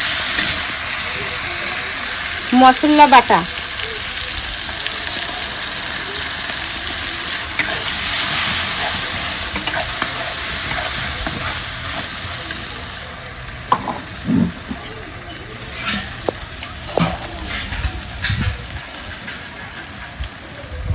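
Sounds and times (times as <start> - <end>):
paste sizzling in hot oil: 0.0 - 20.6
spatula scraping a pan: 7.6 - 12.8, 13.6 - 20.2.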